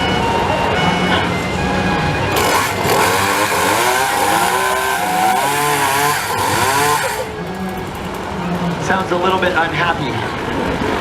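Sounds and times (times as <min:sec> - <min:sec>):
chainsaw engine revving: 0:00.9 - 0:07.7.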